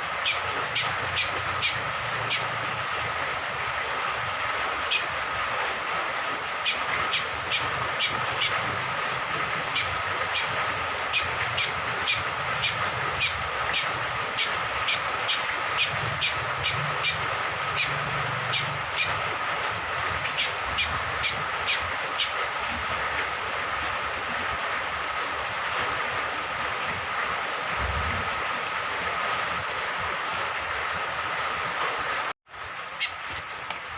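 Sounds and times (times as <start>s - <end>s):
rain water rushing: 0.0s - 33.9s
honeyeater calling sharp notes: 0.2s - 2.6s, 4.9s - 5.1s, 6.7s - 8.6s, 9.7s - 19.2s, 20.3s - 22.4s.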